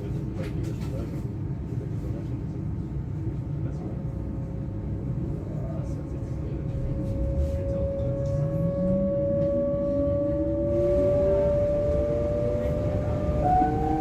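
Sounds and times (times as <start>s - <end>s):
train running gear rumble: 0.0s - 14.0s
electric train traction whine: 6.4s - 14.0s.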